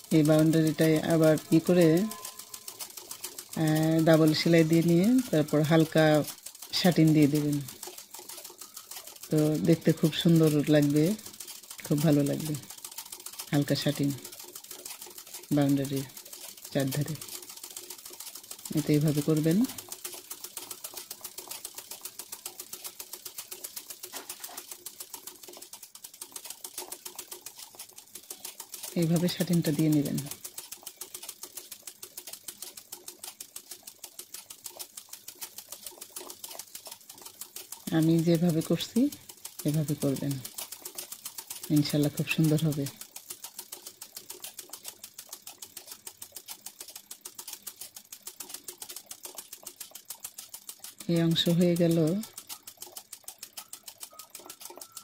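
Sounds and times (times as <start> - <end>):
sewing machine stitching: 0.0 - 55.0.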